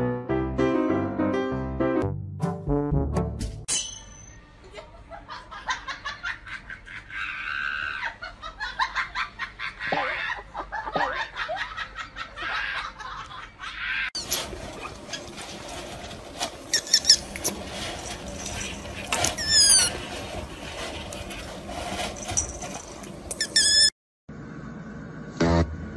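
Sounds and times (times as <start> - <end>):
people laughing: 4.6 - 14.1.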